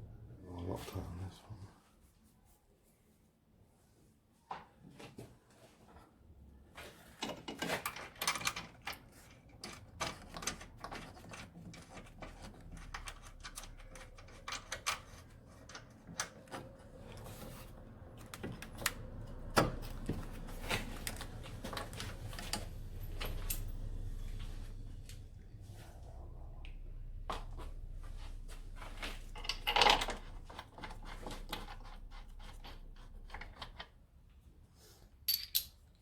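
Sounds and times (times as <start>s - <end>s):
low hum: 16.5s - 33.9s.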